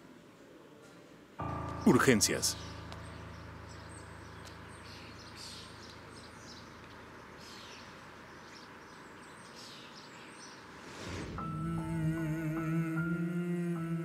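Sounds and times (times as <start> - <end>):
background hiss: 0.0 - 14.0
low hum: 1.4 - 9.2, 11.0 - 14.0
bird chirps: 1.4 - 10.9.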